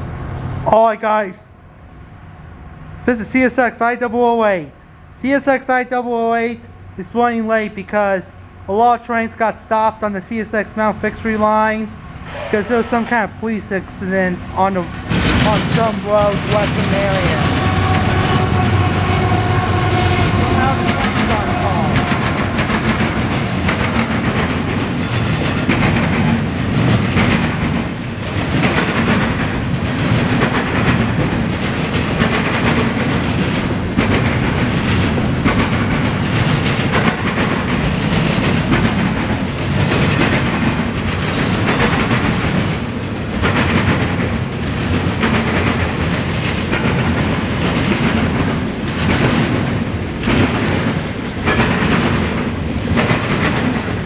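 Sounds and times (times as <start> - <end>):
rumble of rolling freight cars: 0.0 - 54.0
wheels clacking over rail joints: 14.0 - 54.0.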